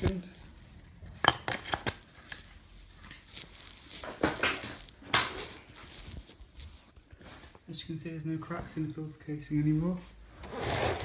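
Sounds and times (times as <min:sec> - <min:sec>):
plastic parts clicking and knocking: 0:01.1 - 0:02.0
plastic parts scraping: 0:10.4 - 0:11.0.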